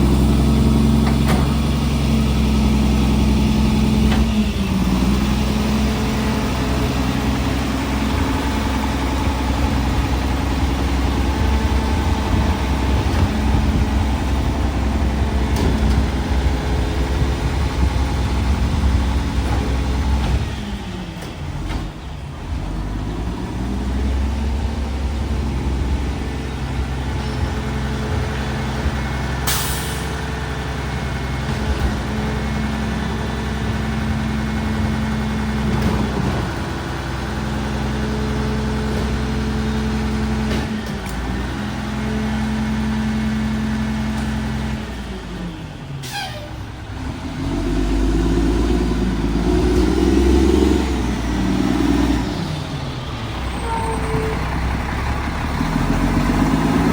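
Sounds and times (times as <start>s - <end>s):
garbage truck diesel engine: 0.0s - 56.9s
air brake hisses: 46.0s - 46.6s.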